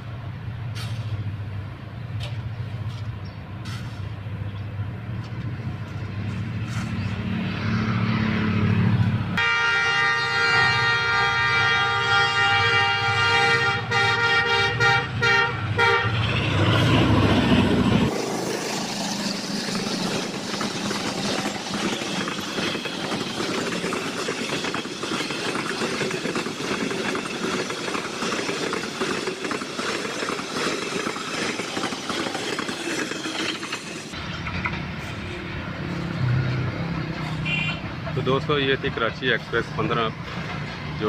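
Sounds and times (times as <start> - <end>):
train rolling rumble: 0.0 - 7.8, 8.6 - 41.0
train wheels clattering: 16.2 - 35.2.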